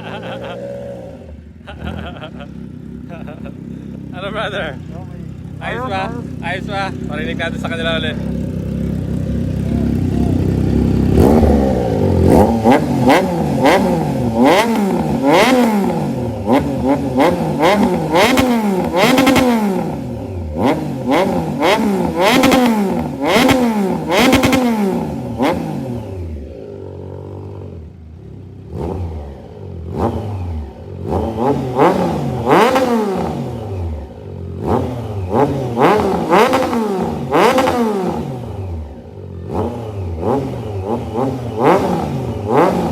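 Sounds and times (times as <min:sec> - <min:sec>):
motorcycle engine idling: 0:00.0 - 0:42.9
motorcycle engine revving: 0:00.0 - 0:42.9.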